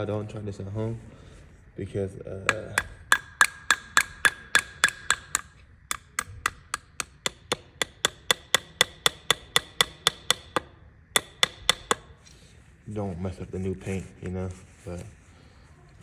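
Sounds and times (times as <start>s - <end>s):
hammer tapping on metal: 2.4s - 12.2s.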